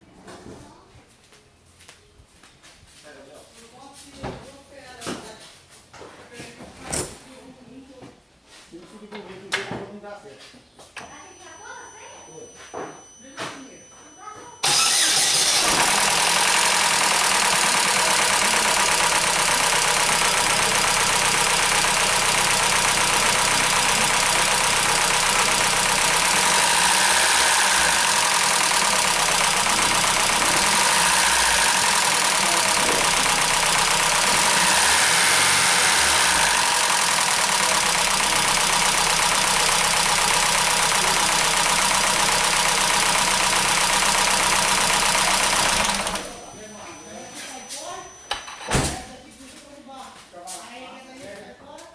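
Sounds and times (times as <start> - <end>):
car engine idling with knocking: 14.6 - 47.0.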